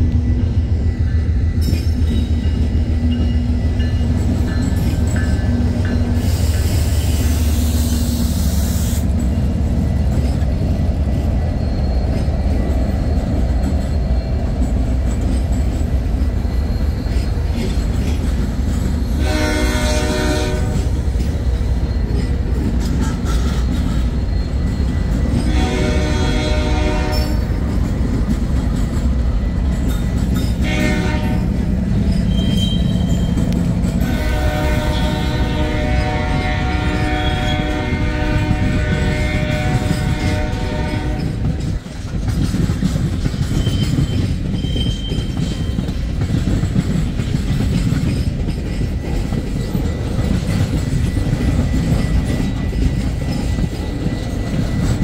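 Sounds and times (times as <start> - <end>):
diesel locomotives rumbling past: 0.0 - 55.0
freight cars rolling: 1.5 - 55.0
locomotive horn blasts: 19.2 - 20.9, 25.5 - 27.5, 30.6 - 31.6, 34.0 - 41.4.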